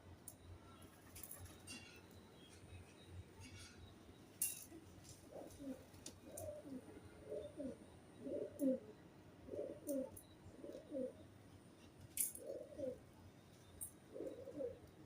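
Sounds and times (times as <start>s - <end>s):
pigeons cooing: 5.2s - 11.2s, 12.2s - 13.1s, 14.0s - 15.0s.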